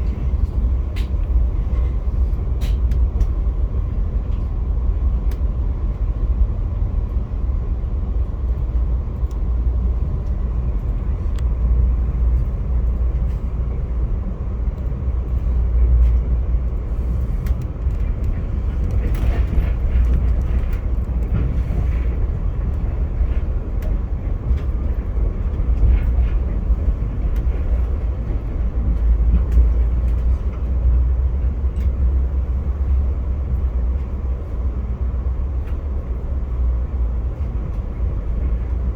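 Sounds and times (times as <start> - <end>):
train rumbling on tracks: 0.0 - 38.9
faint track clicks: 8.2 - 13.4.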